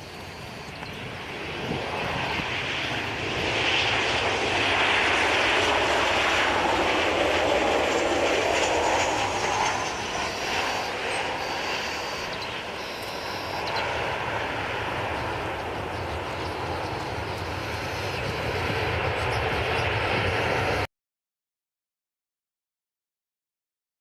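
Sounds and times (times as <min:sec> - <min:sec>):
faint high whine: 0:00.0 - 0:03.8, 0:07.1 - 0:20.9
aircraft engine rush: 0:00.0 - 0:20.9.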